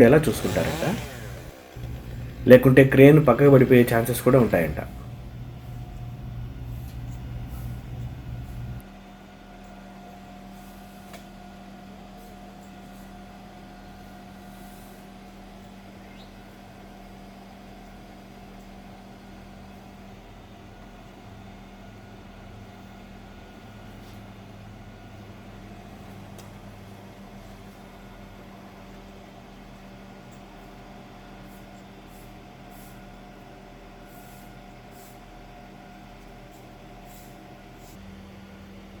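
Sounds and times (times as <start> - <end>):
large engine humming: 0.0 - 8.8.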